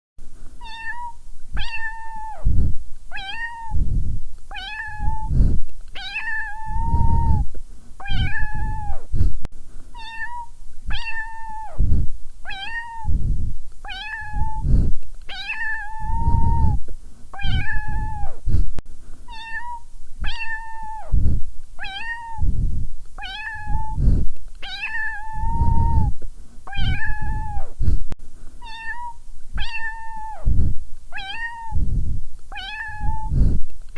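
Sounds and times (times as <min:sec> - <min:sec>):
kitten meowing: 0:00.6 - 0:02.5, 0:03.1 - 0:03.8, 0:04.5 - 0:05.4, 0:06.0 - 0:07.4, 0:08.0 - 0:09.0, 0:10.0 - 0:11.8, 0:12.5 - 0:13.1, 0:13.9 - 0:14.7, 0:15.3 - 0:16.8, 0:17.4 - 0:18.4, 0:19.3 - 0:21.2, 0:21.8 - 0:22.4, 0:23.2 - 0:24.0, 0:24.6 - 0:26.1, 0:26.7 - 0:27.7, 0:28.6 - 0:30.5, 0:31.1 - 0:31.8, 0:32.5 - 0:33.4.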